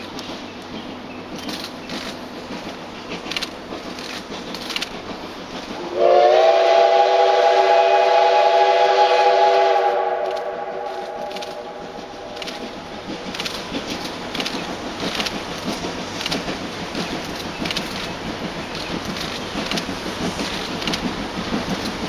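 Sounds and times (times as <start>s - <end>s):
steam locomotive whistle blast: 5.8s - 12.0s.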